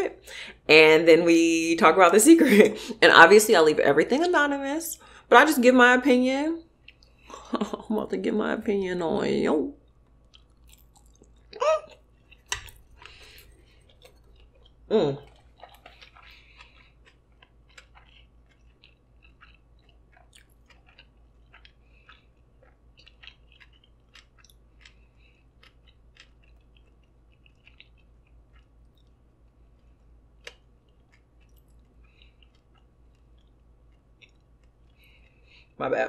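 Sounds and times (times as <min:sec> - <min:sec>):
chewing food: 0:06.6 - 0:07.8, 0:09.8 - 0:35.8
wet mouth clicks: 0:29.8 - 0:35.7.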